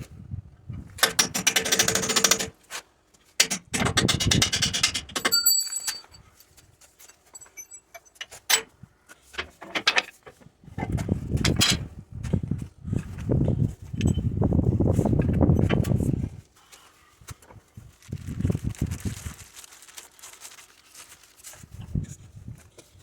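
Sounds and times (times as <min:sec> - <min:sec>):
hand tools clicking and knocking: 0:01.0 - 0:02.6, 0:03.2 - 0:06.2.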